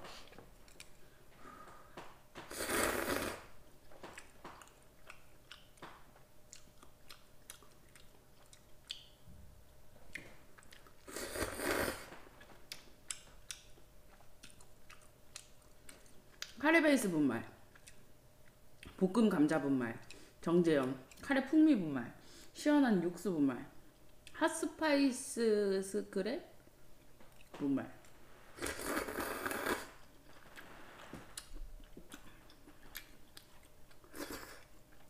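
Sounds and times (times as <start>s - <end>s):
person chewing and crunching food: 0.1s - 16.6s, 17.6s - 19.0s, 27.0s - 27.6s, 28.6s - 35.0s.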